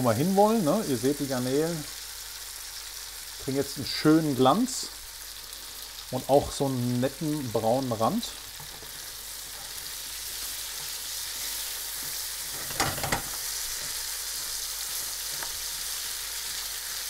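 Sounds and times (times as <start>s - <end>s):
shrimp sizzling in a pan: 0.0s - 17.0s
stirring knocks: 12.0s - 14.0s.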